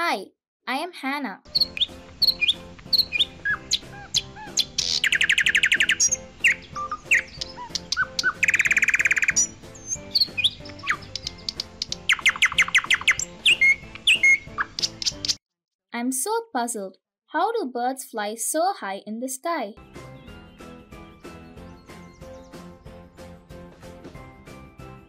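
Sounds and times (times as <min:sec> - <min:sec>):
bird trills: 0:01.5 - 0:15.4
soft background music: 0:01.5 - 0:15.4, 0:19.5 - 0:25.0
songbirds chirping: 0:01.5 - 0:15.4, 0:19.8 - 0:23.6.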